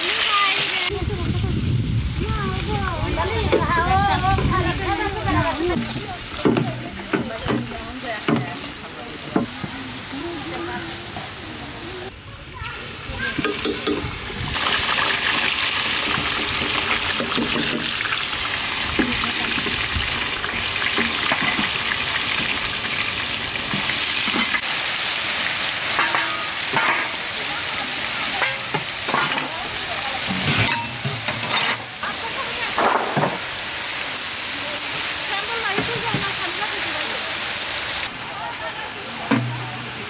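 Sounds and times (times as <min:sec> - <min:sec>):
onions sizzling in hot oil: 0:00.0 - 0:40.0
metal ladle scraping a pan: 0:25.9 - 0:27.4, 0:28.3 - 0:29.6, 0:30.2 - 0:32.2.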